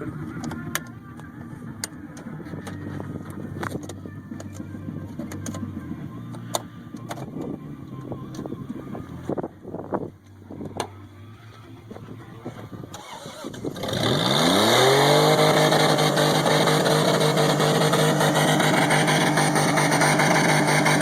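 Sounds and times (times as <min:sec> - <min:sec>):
truck engine revving: 0:12.6 - 0:21.0.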